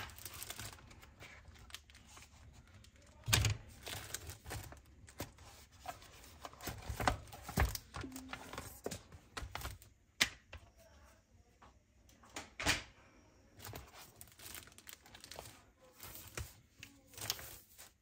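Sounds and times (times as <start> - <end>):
wrapping crinkling and tearing: 0.0 - 9.9, 13.6 - 18.0
packaging being handled: 0.0 - 10.0, 13.6 - 18.0.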